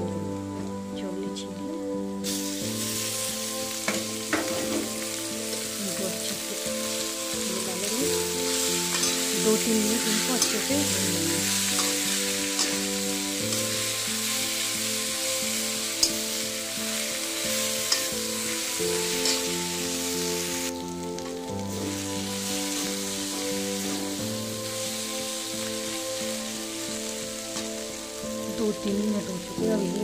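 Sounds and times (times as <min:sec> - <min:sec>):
background melody: 0:00.0 - 0:30.0
beans sizzling in a pan: 0:00.0 - 0:30.0
metal spatula scraping a pan: 0:08.5 - 0:09.4, 0:11.4 - 0:13.0, 0:17.7 - 0:19.5.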